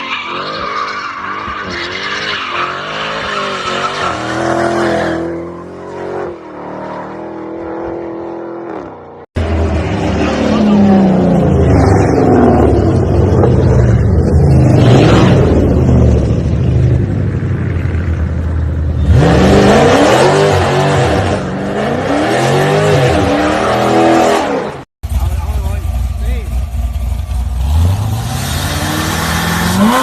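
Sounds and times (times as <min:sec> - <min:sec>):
car engine revving: 0:18.0 - 0:30.0.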